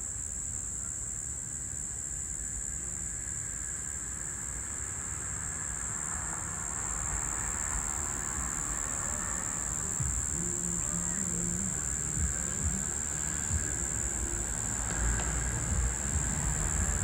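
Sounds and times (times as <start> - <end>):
cicada high-pitched drone: 0.0 - 17.0
low rumble: 6.8 - 17.0.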